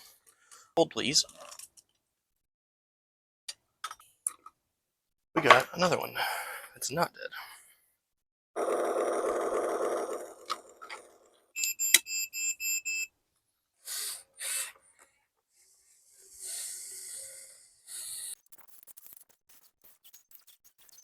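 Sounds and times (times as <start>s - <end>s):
short electronic beeps: 11.6s - 13.1s.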